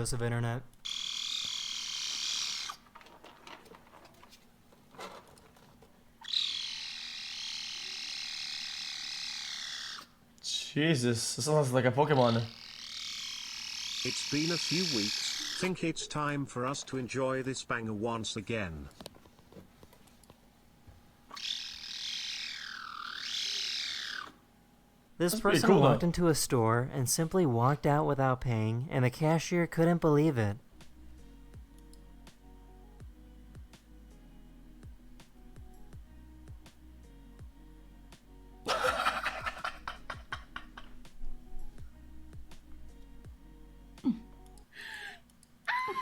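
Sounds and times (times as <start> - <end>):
cat calling: 12.4 - 15.8.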